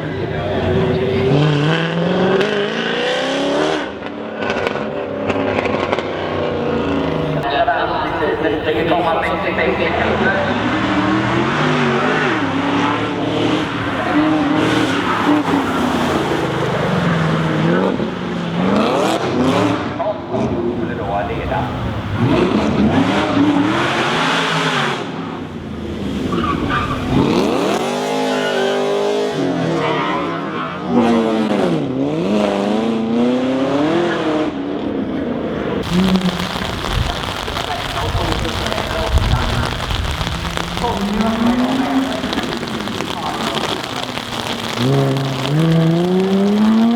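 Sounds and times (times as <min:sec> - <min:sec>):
car engine revving: 0:00.0 - 0:20.8, 0:35.5 - 0:46.9
steady noisy hiss: 0:06.8 - 0:11.5, 0:35.8 - 0:46.9.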